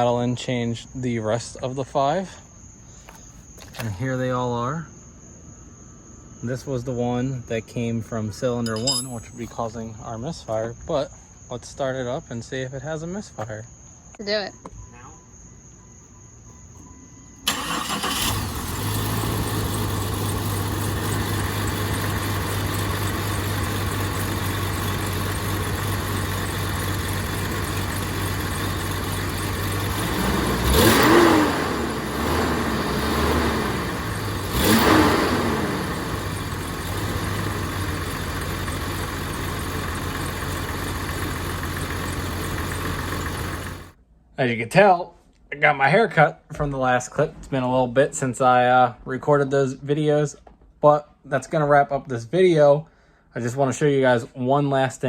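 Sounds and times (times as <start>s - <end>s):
car engine starting: 17.4s - 44.0s
car engine idling and revving: 17.5s - 44.0s.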